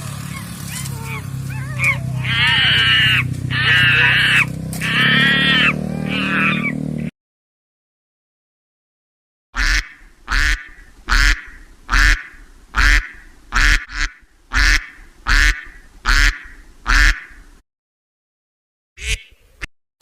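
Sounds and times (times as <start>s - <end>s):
animal calling loudly: 0.2s - 6.9s.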